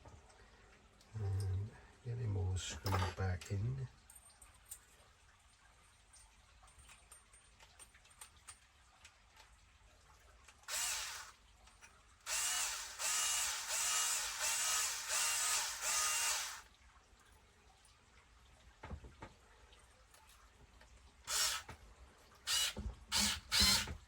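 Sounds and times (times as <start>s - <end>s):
electric screwdriver driving screws: 10.7s - 11.3s, 12.3s - 16.7s, 21.3s - 21.7s, 22.5s - 24.0s.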